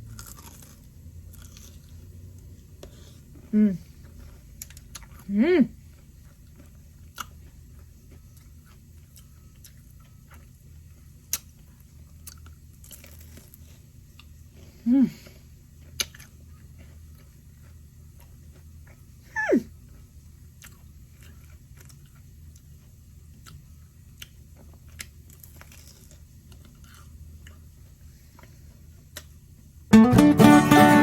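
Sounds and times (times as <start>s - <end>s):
faint chewing: 0.0s - 29.7s
guitar music: 29.9s - 31.0s.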